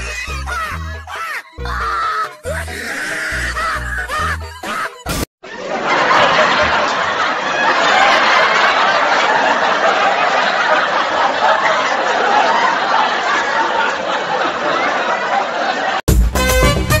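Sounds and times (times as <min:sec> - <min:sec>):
crowd laughing and chattering: 0:05.4 - 0:16.0.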